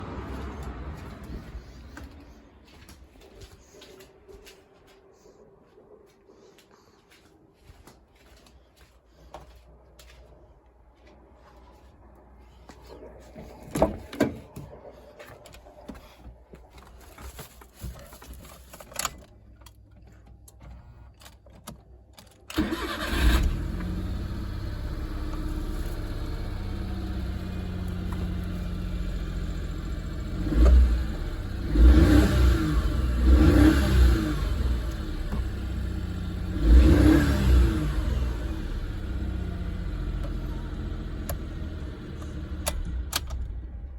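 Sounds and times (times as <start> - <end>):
van engine starting and idling: 0.0 - 2.9, 12.8 - 43.9
engine revving: 22.5 - 43.9.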